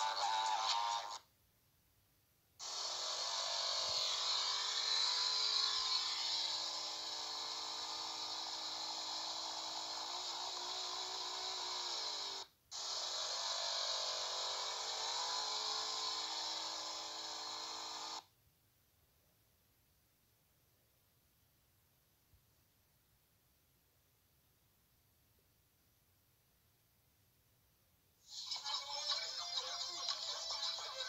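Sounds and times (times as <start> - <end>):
motorcycle engine at high revs: 2.6 - 18.2.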